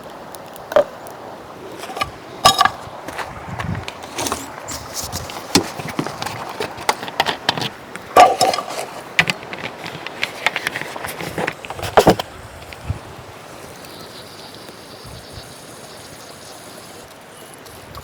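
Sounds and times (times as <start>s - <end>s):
irregular knocks and clatters: 1.8s - 12.2s.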